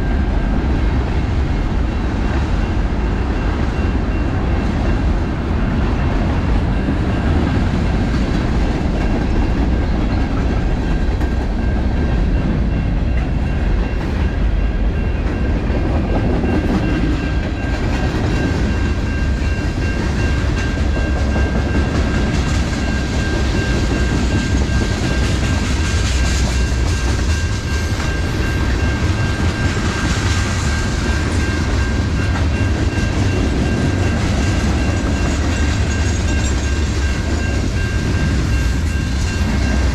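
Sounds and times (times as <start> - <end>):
train rumble: 0.0 - 39.9.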